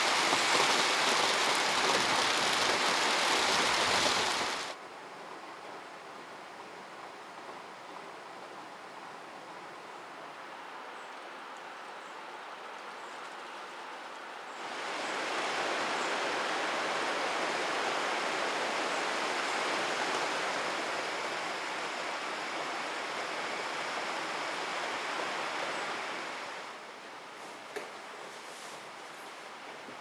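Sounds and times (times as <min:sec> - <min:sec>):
rushing water hiss: 0:00.0 - 0:04.8, 0:14.6 - 0:29.6.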